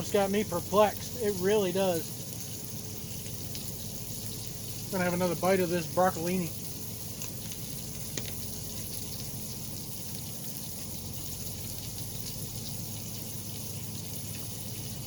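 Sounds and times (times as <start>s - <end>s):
vegetables sizzling in a cooker: 0.0s - 15.0s.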